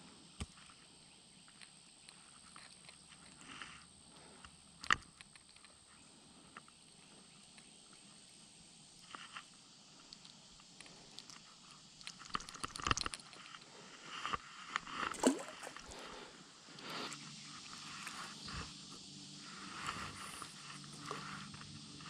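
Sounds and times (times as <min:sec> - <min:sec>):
fishing gear clicks and knocks: 0:15.0 - 0:16.1.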